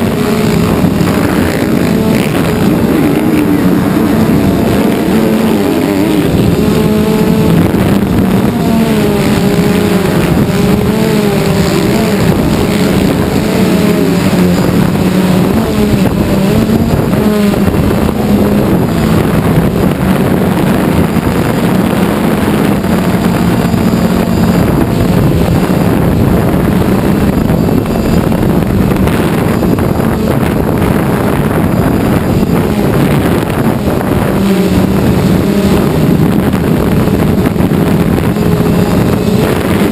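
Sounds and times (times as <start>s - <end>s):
drone propellers droning: 0.0s - 39.9s.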